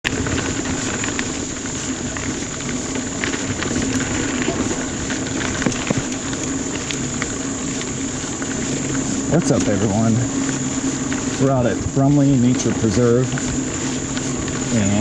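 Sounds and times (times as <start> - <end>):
bike clicks and rattles: 0.1 - 15.0
high-pitched whine: 0.1 - 15.0.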